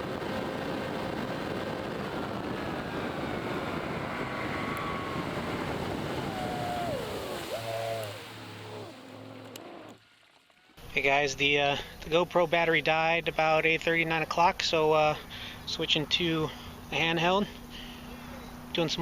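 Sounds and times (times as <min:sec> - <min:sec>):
rush of wind and water: 0:00.0 - 0:09.9
outboard motor running: 0:00.0 - 0:11.0.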